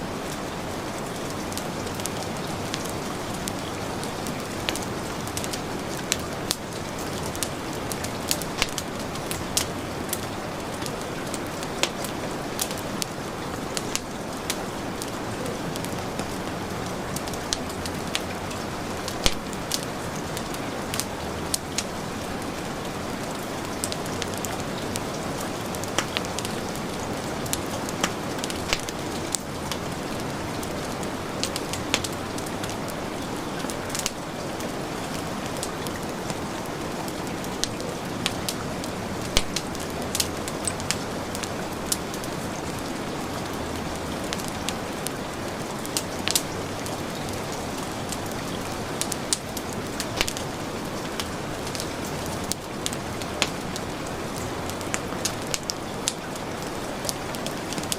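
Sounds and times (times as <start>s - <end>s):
fireplace fire crackling: 0.0s - 57.9s
heavy rain falling: 0.0s - 57.9s.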